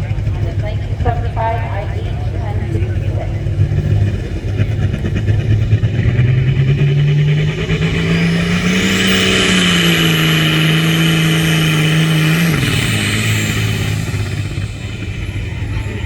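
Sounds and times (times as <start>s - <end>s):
high whine: 0.0s - 16.0s
tractor engine revving: 0.0s - 16.0s.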